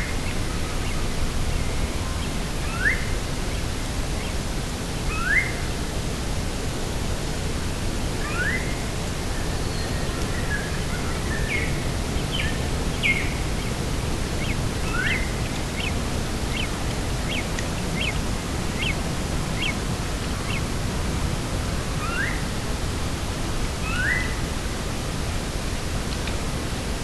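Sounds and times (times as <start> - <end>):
birds calling: 9.7 - 24.6
wind rushing: 11.7 - 27.0.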